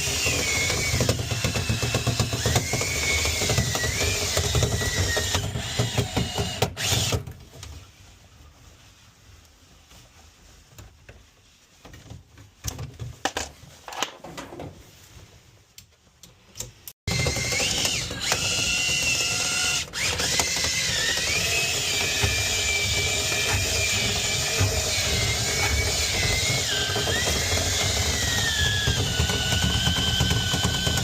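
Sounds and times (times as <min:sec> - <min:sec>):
power drill whining: 0:00.0 - 0:07.2, 0:17.1 - 0:31.0.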